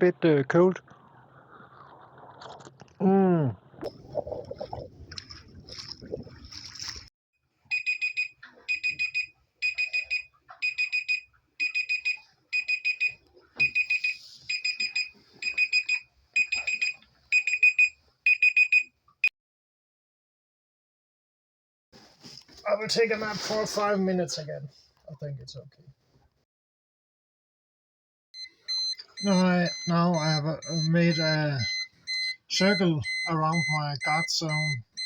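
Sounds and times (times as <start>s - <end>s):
electronic alarm beeping: 7.7s - 18.9s, 28.4s - 35.0s.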